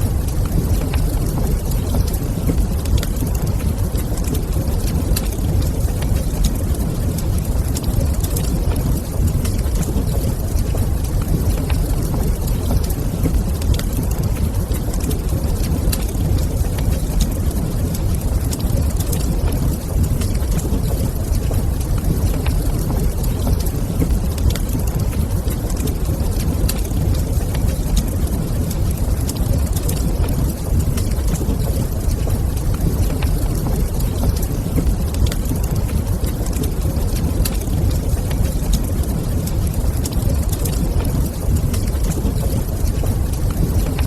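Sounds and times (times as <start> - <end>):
wood fire crackling: 0.0 - 44.0
fire pops: 0.1 - 44.0.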